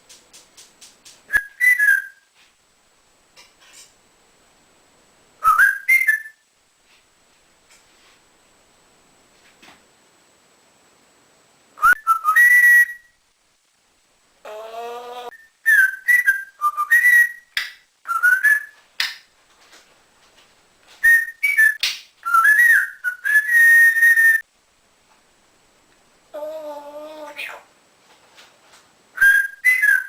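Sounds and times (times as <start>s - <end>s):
parrot whistling: 1.3s - 2.2s, 5.4s - 6.4s, 11.8s - 13.1s, 14.5s - 18.8s, 21.0s - 24.4s, 29.2s - 30.0s.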